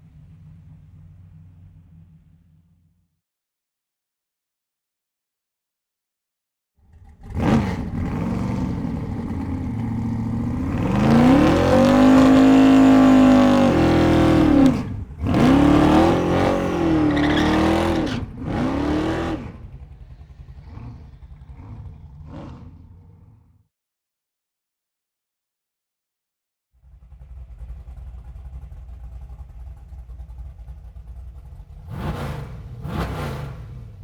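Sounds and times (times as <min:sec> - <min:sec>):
car engine idling: 0:00.0 - 0:03.0, 0:08.0 - 0:13.7, 0:19.4 - 0:23.3, 0:26.8 - 0:34.0
car engine revving: 0:06.9 - 0:23.6, 0:26.9 - 0:34.0.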